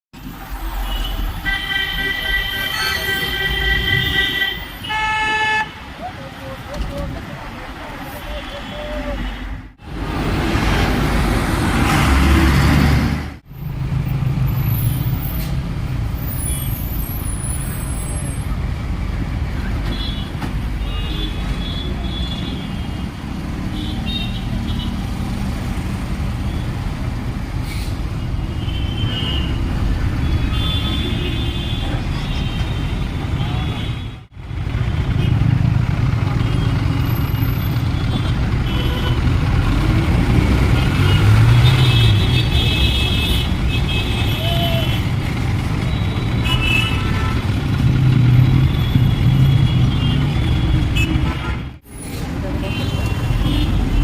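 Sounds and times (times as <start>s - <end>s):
vehicle engines rumbling: 0.2s - 54.0s
car horns honking: 0.7s - 6.0s, 36.4s - 39.9s, 40.6s - 45.1s, 45.8s - 51.8s.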